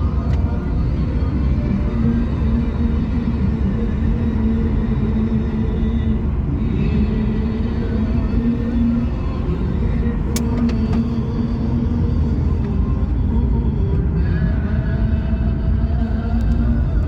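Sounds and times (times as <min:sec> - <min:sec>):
car driving rumble: 0:00.0 - 0:17.0
light clicks: 0:10.3 - 0:11.1.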